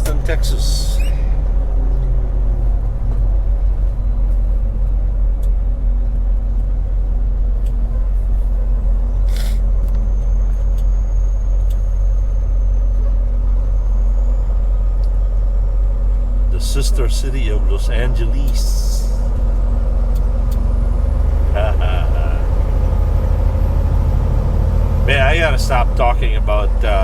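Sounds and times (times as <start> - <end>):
diesel truck engine drone: 0.0 - 27.0
road noise: 0.0 - 27.0
brief hiss: 9.3 - 9.6.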